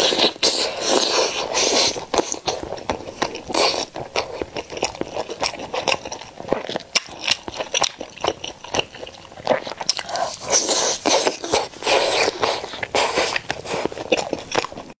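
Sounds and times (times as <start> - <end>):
person biting and chewing: 0.0 - 15.0.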